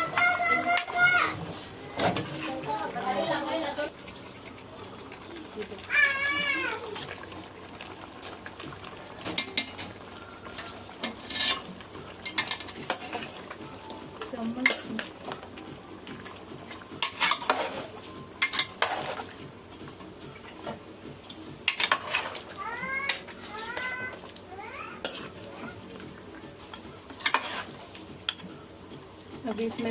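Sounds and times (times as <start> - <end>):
oil sizzling: 0.0 - 29.9
spatula scraping a pot: 10.5 - 13.4, 17.0 - 19.4, 21.6 - 23.9, 24.9 - 25.8, 26.7 - 28.9.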